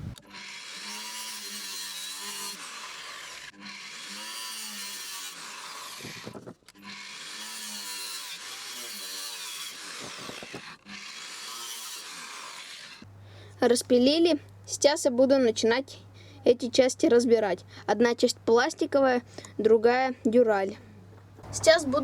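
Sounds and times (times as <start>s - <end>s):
angle grinder cutting steel: 0.0s - 13.1s.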